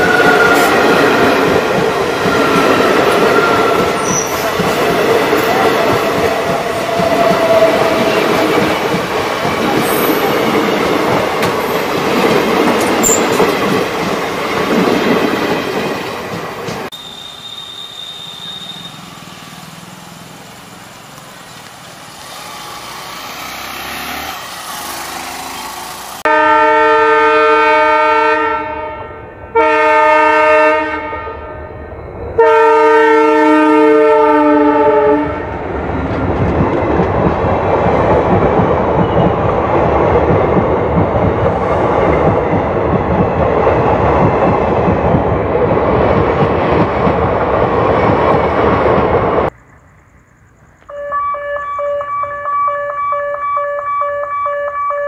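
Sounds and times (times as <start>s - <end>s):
wheels clattering on rails: 0.0s - 16.9s, 35.6s - 49.6s
train rumbling past: 0.0s - 54.7s
locomotive horn blasts: 26.3s - 31.7s, 32.4s - 35.4s, 50.9s - 55.0s.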